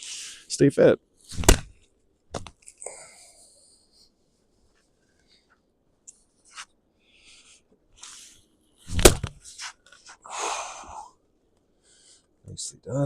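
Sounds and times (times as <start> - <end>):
axe splitting log: 1.3 - 1.8, 8.9 - 9.3
soft rustling: 3.6 - 10.2.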